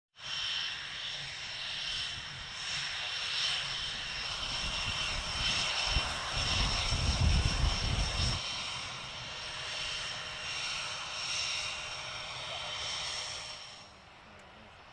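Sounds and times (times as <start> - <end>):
distant jet roar with whine: 0.2 - 14.9
low buffeting rumble: 3.7 - 10.1.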